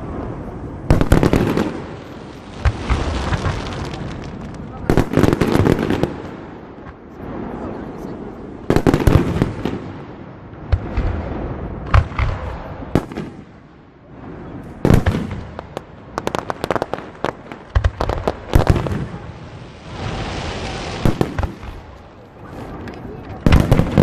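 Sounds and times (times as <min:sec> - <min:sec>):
fireworks bangs: 0:00.0 - 0:24.0
hissing crackle: 0:01.0 - 0:09.6, 0:14.6 - 0:24.0.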